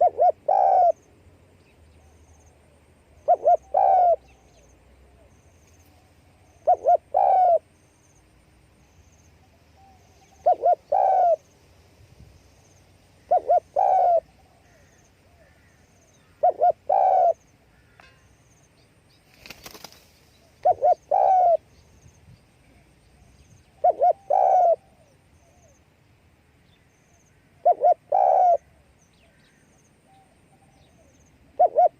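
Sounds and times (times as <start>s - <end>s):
dove cooing: 0.0s - 1.0s, 3.2s - 4.5s, 6.6s - 7.7s, 9.8s - 11.4s, 13.2s - 17.4s, 20.4s - 21.7s, 23.7s - 25.7s, 27.6s - 28.8s, 30.6s - 31.9s.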